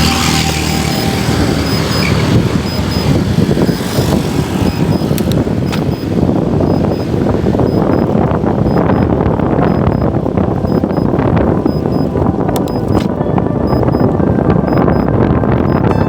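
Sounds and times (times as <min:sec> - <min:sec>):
vehicle engine passing: 0:00.0 - 0:08.1
wind buffeting microphone: 0:00.0 - 0:16.0.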